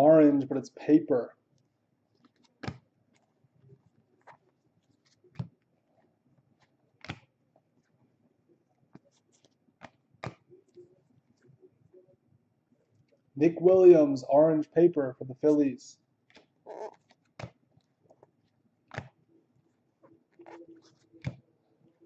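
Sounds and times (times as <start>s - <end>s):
cards tapping and flicking: 2.2s - 2.8s, 6.6s - 7.3s, 8.9s - 10.5s, 17.1s - 17.6s, 18.9s - 19.2s, 21.2s - 21.4s.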